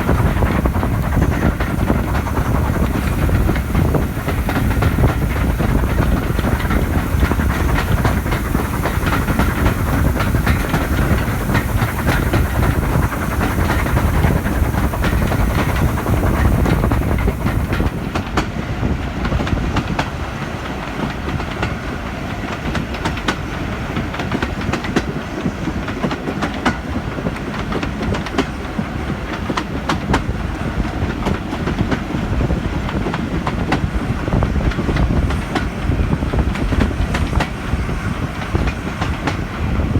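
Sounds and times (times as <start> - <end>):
high steam hiss: 0.0 - 18.4
train rumbling along track: 0.0 - 39.9.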